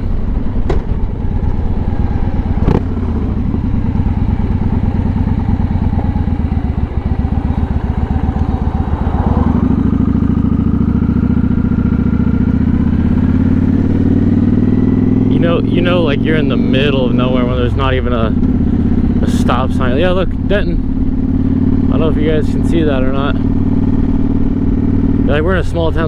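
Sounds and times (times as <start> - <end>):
faint rising tone: 0.0 - 19.3
motorcycle engine running: 0.0 - 26.0.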